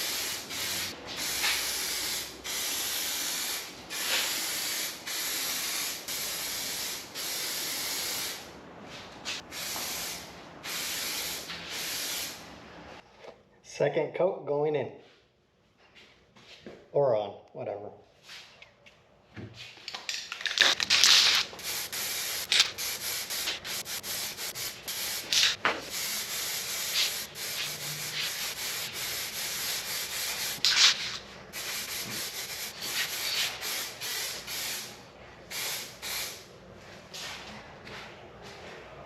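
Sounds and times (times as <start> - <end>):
spray paint hissing: 0.0 - 8.5, 9.3 - 12.4, 20.4 - 36.4.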